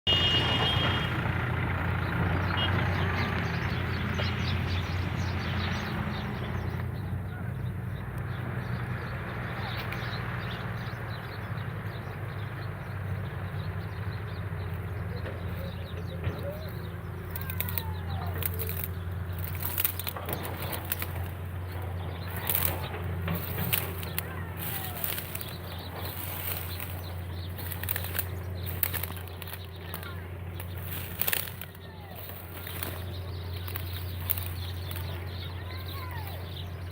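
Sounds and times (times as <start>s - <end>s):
birds chirping: 0.0s - 36.9s
sharp clicks and rustles: 16.1s - 36.6s.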